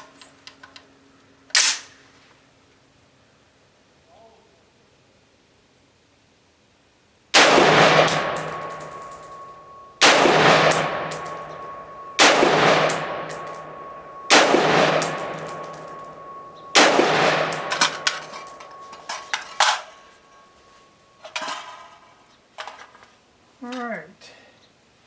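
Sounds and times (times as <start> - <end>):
rifle shots echoing: 7.4 - 18.9
ejected brass clinking: 7.4 - 20.1.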